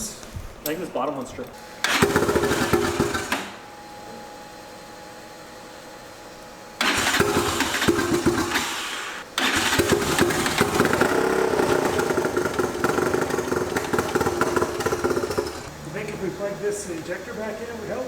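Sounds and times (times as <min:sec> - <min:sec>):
engine starting and running loudly: 0:01.8 - 0:03.6, 0:06.8 - 0:16.6.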